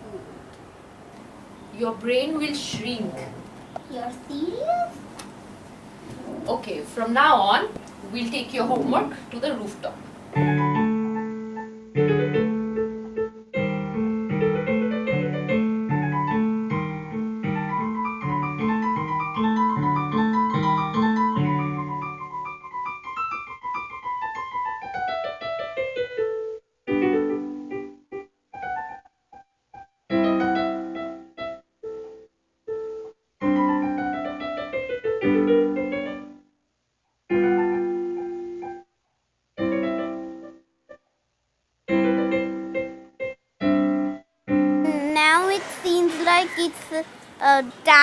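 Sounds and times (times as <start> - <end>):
solo piano music: 0.0 - 36.5, 37.3 - 38.9, 39.6 - 40.6, 41.9 - 48.0.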